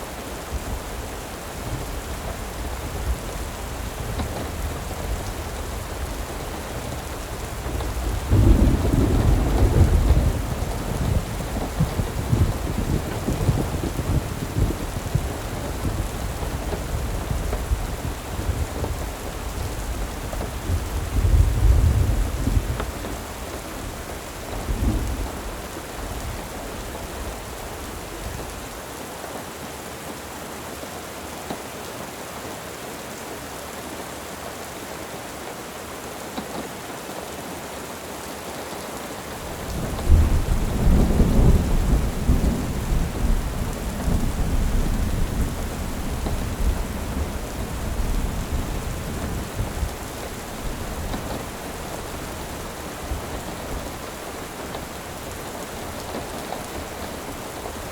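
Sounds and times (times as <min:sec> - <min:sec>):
steady rain: 0:00.0 - 0:57.9
rolling thunder: 0:01.6 - 0:26.9, 0:39.4 - 0:57.9.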